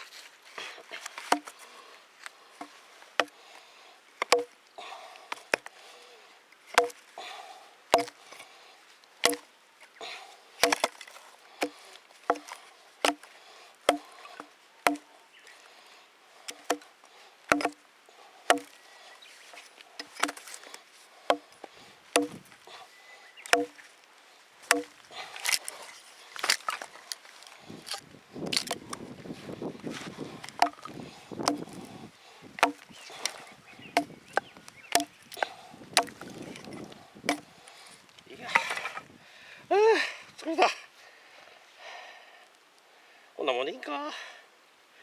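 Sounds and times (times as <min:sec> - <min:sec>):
wood chopping strikes: 0:01.2 - 0:01.6, 0:02.6 - 0:03.4, 0:04.2 - 0:04.6, 0:05.3 - 0:05.7, 0:06.7 - 0:07.0, 0:07.9 - 0:08.2, 0:09.2 - 0:09.5, 0:10.6 - 0:13.3, 0:13.9 - 0:15.1, 0:16.5 - 0:16.9, 0:17.5 - 0:17.8, 0:18.5 - 0:18.8, 0:20.0 - 0:20.7, 0:21.3 - 0:22.5, 0:23.4 - 0:23.9, 0:24.6 - 0:25.6, 0:27.9 - 0:29.0, 0:30.4 - 0:31.8, 0:32.6 - 0:37.5, 0:38.5 - 0:39.0.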